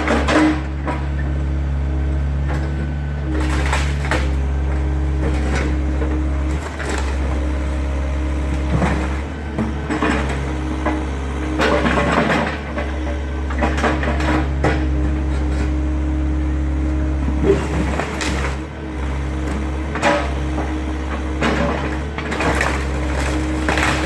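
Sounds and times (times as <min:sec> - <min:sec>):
diesel engine running under load: 0:00.0 - 0:24.0
wood crunching and cracking: 0:02.4 - 0:15.7, 0:17.4 - 0:18.7, 0:21.1 - 0:24.0.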